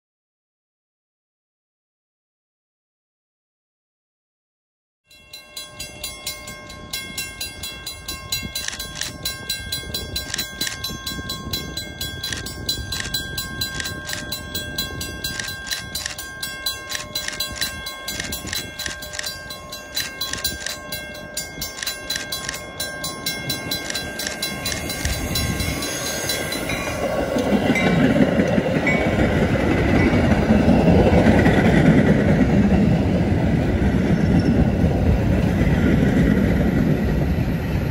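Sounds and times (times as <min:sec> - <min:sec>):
crossing bells ringing: 0:05.1 - 0:35.4
train wheels rumbling on rails: 0:05.3 - 0:37.9.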